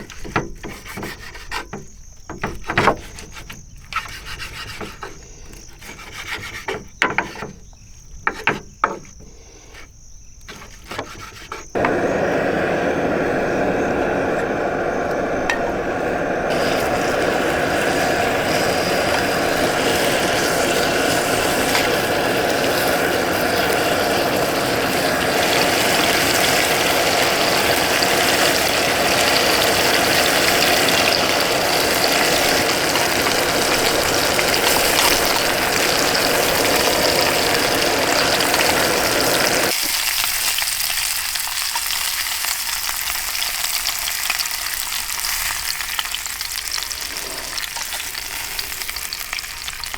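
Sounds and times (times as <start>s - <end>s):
low rushing sound: 11.8s - 26.1s
food sizzling in a pan: 11.8s - 49.9s.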